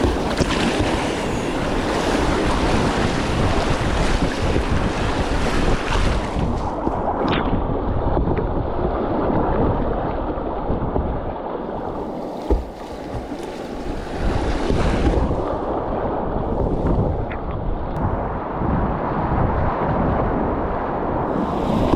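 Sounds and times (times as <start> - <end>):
whitewater rushing: 0.0 - 6.8
wind buffeting microphone: 0.0 - 21.9.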